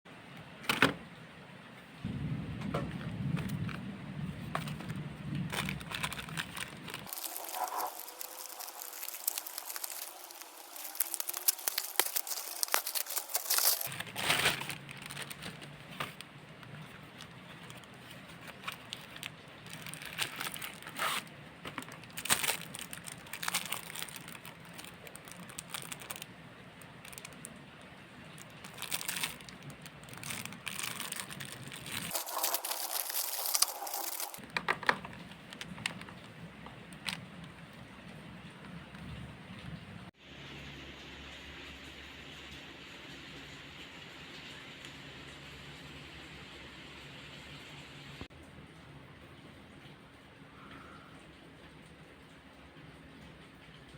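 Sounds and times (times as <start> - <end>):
sharp crackles and clicks: 2.1 - 27.6, 28.3 - 37.6
packaging crinkling and rustling: 2.8 - 37.8.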